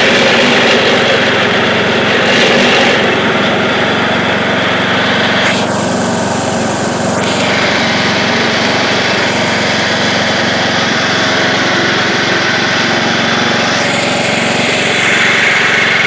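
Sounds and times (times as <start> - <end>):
lawn tractor engine at high throttle: 0.0 - 16.0.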